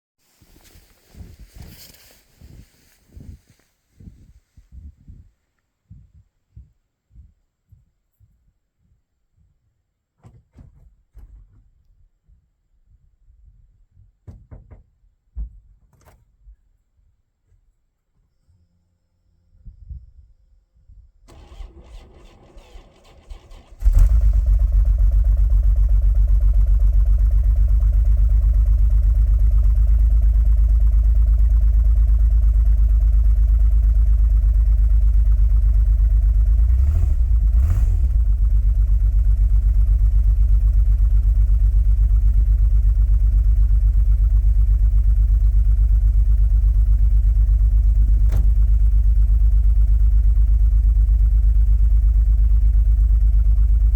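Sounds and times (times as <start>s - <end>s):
engine cranking: 21.3s - 24.7s
engine idling: 21.3s - 53.9s.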